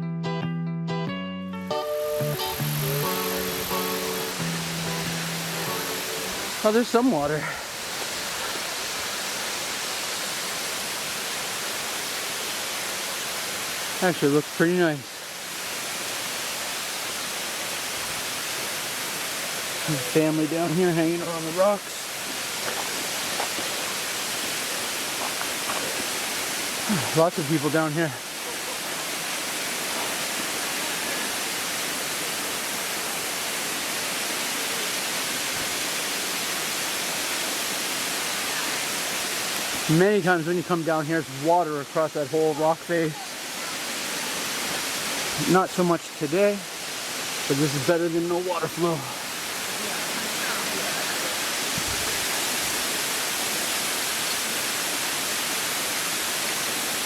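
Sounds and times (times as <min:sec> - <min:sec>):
waterfall rushing: 0:01.7 - 0:57.0.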